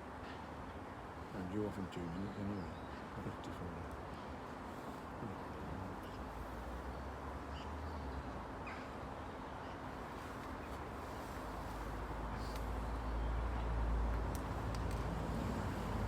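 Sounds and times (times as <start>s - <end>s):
faint bird chirps: 5.2s - 9.9s.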